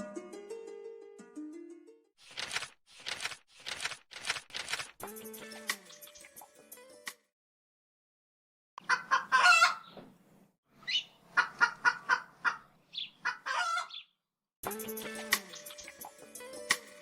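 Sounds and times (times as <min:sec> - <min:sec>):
music: 0:00.0 - 0:02.1, 0:05.0 - 0:07.3, 0:14.6 - 0:17.0
chicken clucking: 0:08.8 - 0:09.9, 0:11.3 - 0:14.0.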